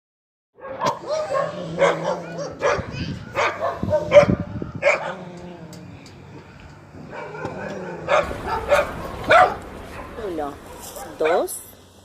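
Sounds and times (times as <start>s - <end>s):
dog barking: 0.6s - 5.3s, 7.0s - 11.6s.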